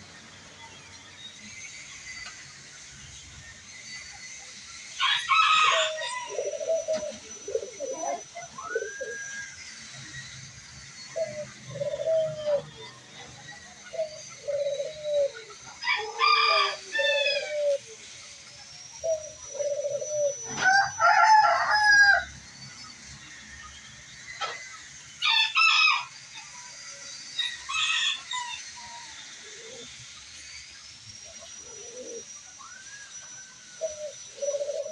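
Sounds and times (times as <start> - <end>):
doves cooing: 4.2 - 22.3, 26.6 - 34.9
rooster crowing: 4.9 - 9.6, 14.5 - 17.9, 19.8 - 22.5, 25.2 - 29.8.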